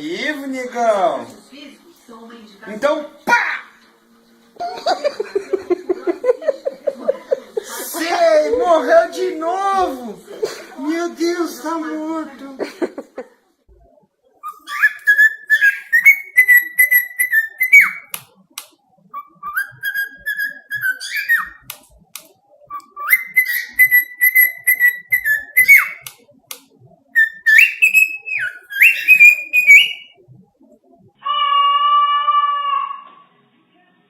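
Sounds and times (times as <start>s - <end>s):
parrot whistling a tune: 14.4s - 18.2s, 19.1s - 21.7s, 22.7s - 26.1s, 27.1s - 30.2s.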